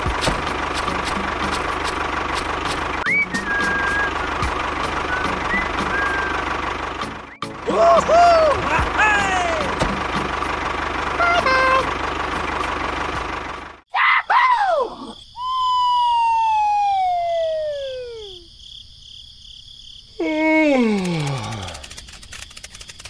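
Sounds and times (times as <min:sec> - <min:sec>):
engine-like rumble: 0:00.0 - 0:13.8
whistle sliding down in pitch: 0:03.0 - 0:04.2
cartoon falling chirps: 0:14.5 - 0:18.5.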